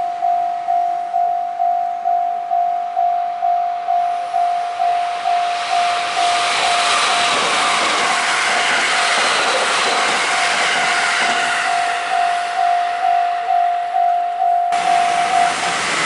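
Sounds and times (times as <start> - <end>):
electric train passing: 0.0 - 16.0
level crossing bell ringing: 12.1 - 15.6.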